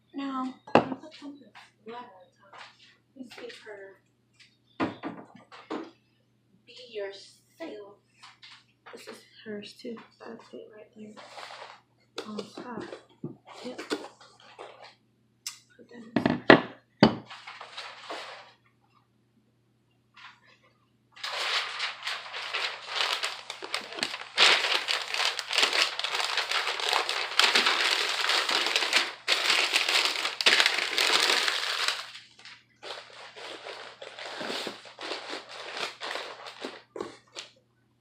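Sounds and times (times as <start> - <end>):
packing paper crumpling: 17.3 - 18.6, 21.2 - 37.5.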